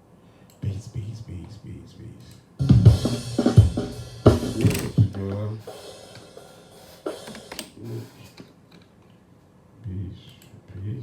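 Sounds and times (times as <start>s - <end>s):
drum kit hits: 2.6s - 7.6s.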